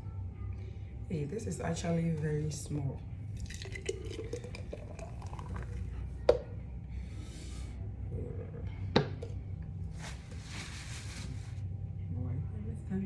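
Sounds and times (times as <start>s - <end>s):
glass bottles knocking on hard surface: 8.9s - 9.4s
rustling: 9.9s - 11.6s.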